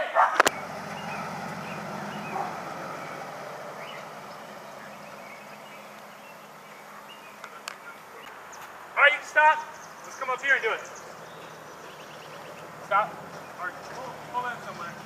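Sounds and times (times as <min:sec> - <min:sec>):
car engine pulling away: 0:00.4 - 0:15.0
faint clicks: 0:05.9 - 0:06.1.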